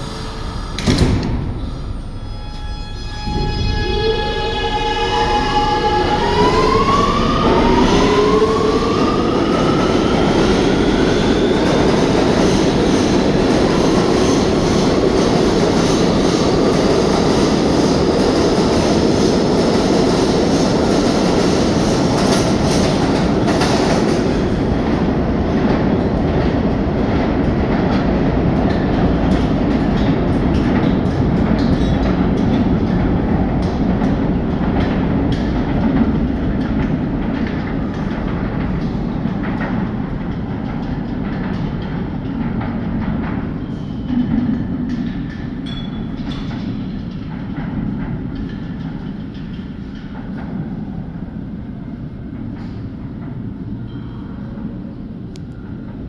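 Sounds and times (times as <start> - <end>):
electric train motors whining: 0.0 - 22.3
train wheels rumbling on rails: 0.0 - 56.0.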